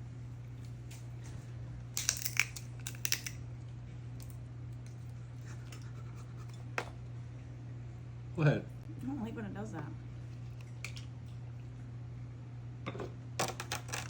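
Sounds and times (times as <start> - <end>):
crab shell cracking: 1.9 - 3.4.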